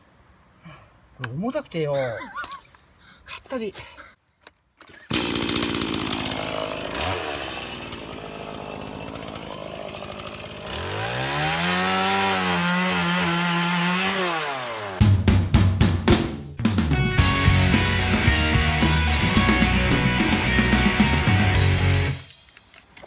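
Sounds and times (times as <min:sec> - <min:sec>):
chainsaw revving: 0:04.9 - 0:15.0, 0:17.2 - 0:22.2.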